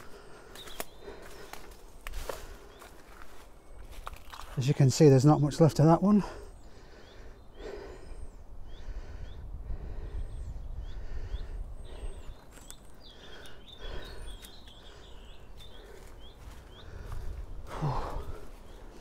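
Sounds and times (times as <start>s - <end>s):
footsteps through undergrowth: 0.0s - 5.0s, 14.3s - 19.0s
small birds chirping: 0.0s - 19.0s
wind rumble on microphone: 8.4s - 12.5s, 16.4s - 18.6s.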